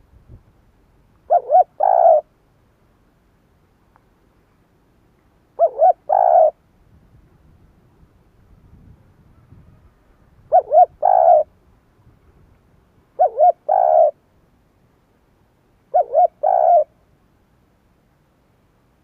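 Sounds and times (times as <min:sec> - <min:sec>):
dove cooing: 0:01.3 - 0:02.3, 0:05.6 - 0:06.6, 0:10.4 - 0:11.5, 0:13.2 - 0:14.2, 0:15.9 - 0:17.0.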